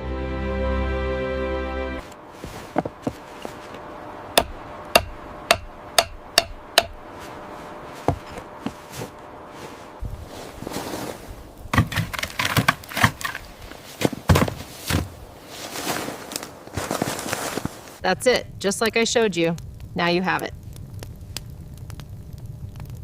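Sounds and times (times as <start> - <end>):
sharp hammer-like knocks: 4.4 - 7.0
scraping: 6.9 - 18.0.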